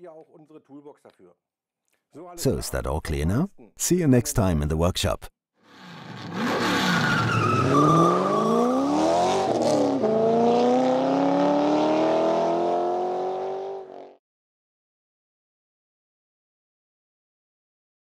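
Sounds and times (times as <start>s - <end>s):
car engine revving: 5.7s - 14.1s
tyre squeal: 6.2s - 9.0s.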